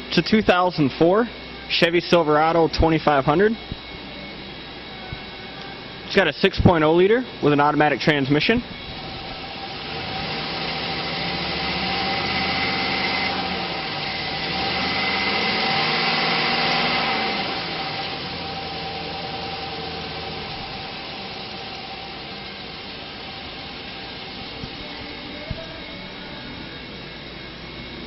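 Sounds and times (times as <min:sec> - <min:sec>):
engine revving and idling: 0:08.8 - 0:28.0.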